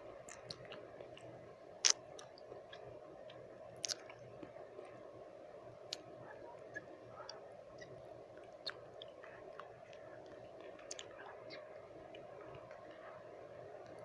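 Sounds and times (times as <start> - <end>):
white noise: 0.0 - 14.0
lip smacks and tongue clicks: 0.2 - 4.2, 6.7 - 13.0.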